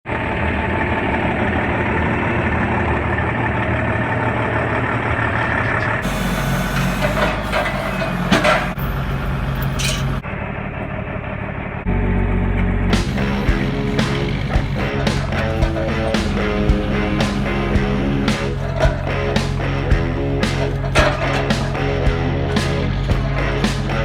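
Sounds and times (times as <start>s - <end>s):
truck diesel engine running: 10.3s - 24.0s
sharp noises: 12.8s - 24.0s.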